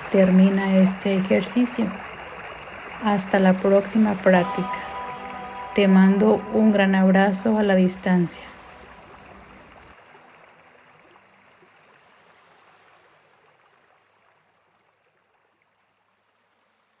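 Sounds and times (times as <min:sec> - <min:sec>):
sea waves washing: 0:00.0 - 0:09.9.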